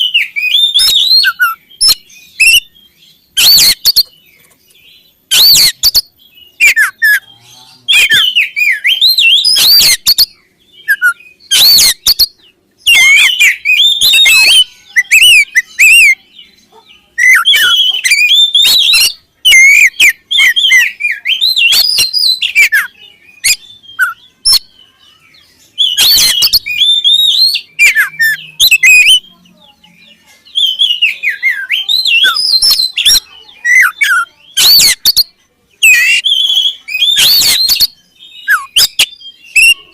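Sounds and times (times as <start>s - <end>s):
bird whistled song: 0.0s - 39.9s.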